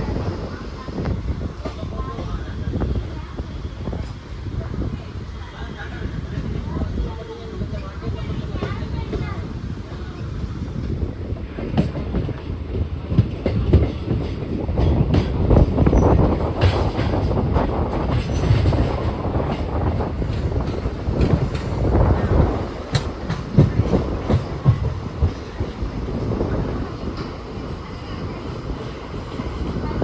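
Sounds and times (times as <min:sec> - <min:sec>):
train rumbling on rails: 0:00.0 - 0:30.0
wheel clatter over rail joints: 0:06.2 - 0:30.0.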